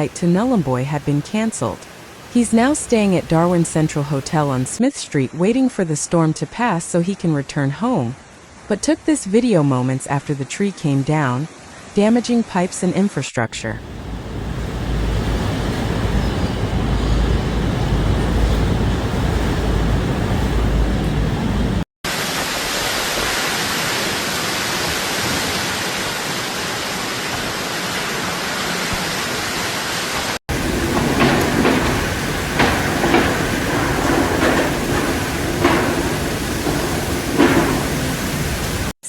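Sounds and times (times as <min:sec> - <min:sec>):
hiss of wind-driven rain: 0:00.0 - 0:04.8, 0:13.8 - 0:39.0
wind buffeting microphone: 0:13.8 - 0:21.8, 0:30.5 - 0:38.9
sharp knocks: 0:30.5 - 0:38.9.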